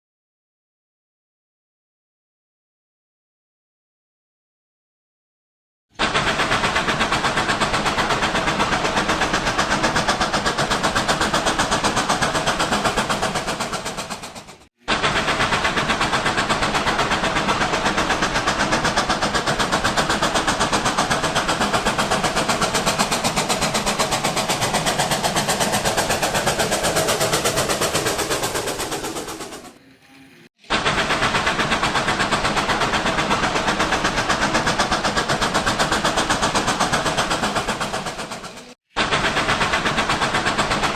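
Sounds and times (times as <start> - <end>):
toy train running on track: 6.0 - 40.9.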